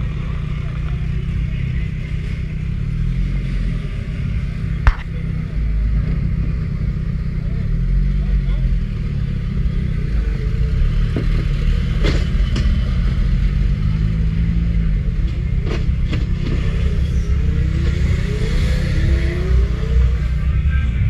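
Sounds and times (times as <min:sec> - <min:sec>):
engine low rumble: 0:00.0 - 0:21.0
sharp knocks: 0:04.8 - 0:05.1.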